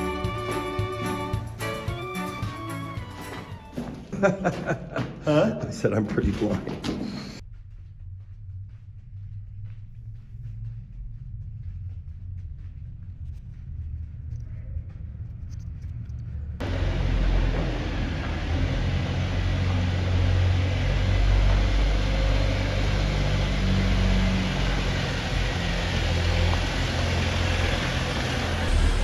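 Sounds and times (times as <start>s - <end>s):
off-road vehicle low rumble: 5.9s - 29.0s.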